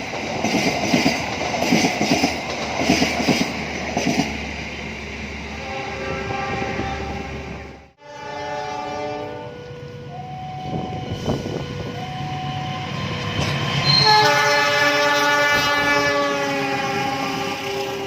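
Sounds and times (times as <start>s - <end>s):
train rumbling: 0.0s - 18.0s
locomotive air horn blasts: 5.6s - 12.3s, 13.8s - 18.0s.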